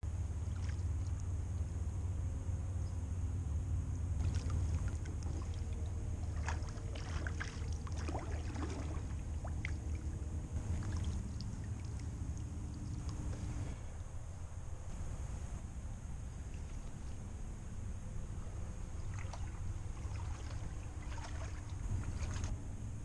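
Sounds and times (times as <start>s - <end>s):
steady low rumble: 0.0s - 23.0s
water splashing and dripping: 0.4s - 1.3s, 4.2s - 13.8s, 19.0s - 22.6s.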